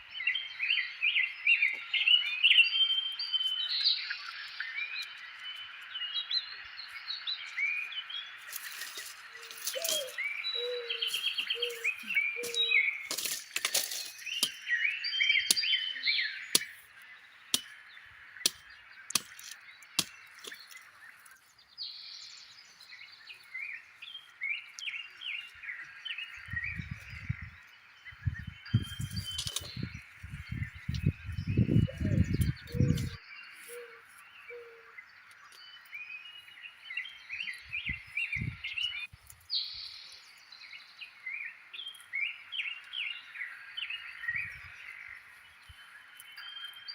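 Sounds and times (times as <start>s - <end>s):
steady outdoor hiss: 0.0s - 26.6s
birds chirping and singing: 0.0s - 46.9s.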